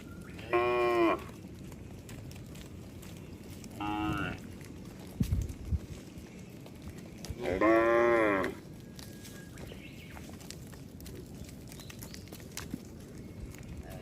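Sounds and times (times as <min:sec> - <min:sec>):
cow mooing: 0:00.4 - 0:01.3, 0:03.8 - 0:04.4, 0:07.4 - 0:08.6.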